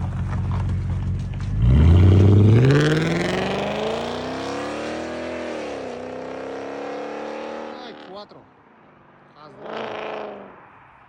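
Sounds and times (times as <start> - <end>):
car engine accelerating hard: 0.0 - 8.2.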